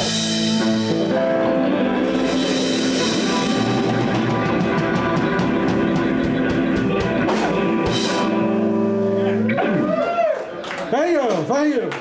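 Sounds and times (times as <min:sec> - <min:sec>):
blues band playing: 0:00.0 - 0:11.5
drum hits: 0:02.1 - 0:08.4.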